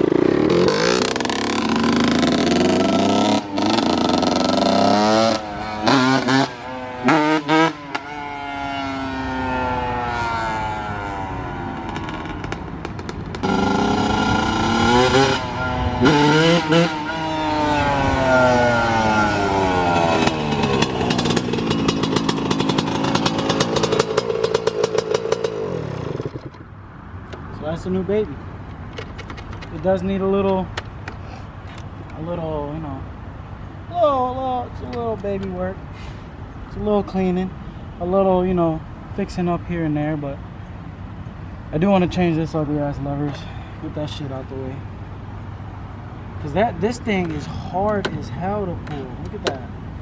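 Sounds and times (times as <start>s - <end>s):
dirt bike engine revving: 0.0s - 26.6s.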